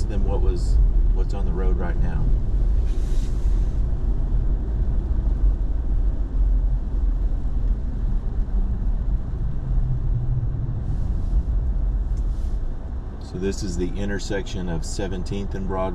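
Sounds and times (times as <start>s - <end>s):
truck engine and tyre rumble: 0.0s - 15.9s.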